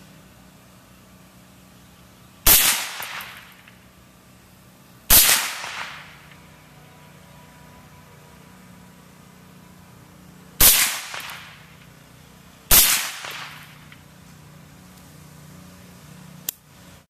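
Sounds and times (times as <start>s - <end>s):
suppressed rifle shots echoing: 2.5s - 3.6s, 5.1s - 6.2s, 10.6s - 11.7s, 12.7s - 13.9s.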